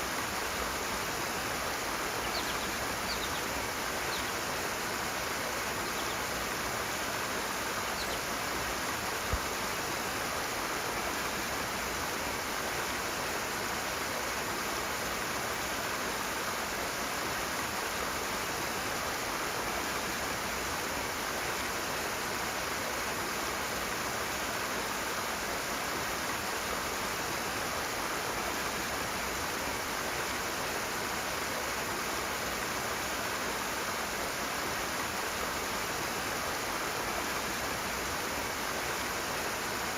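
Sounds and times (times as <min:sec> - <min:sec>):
fast-flowing stream: 0:00.0 - 0:39.9.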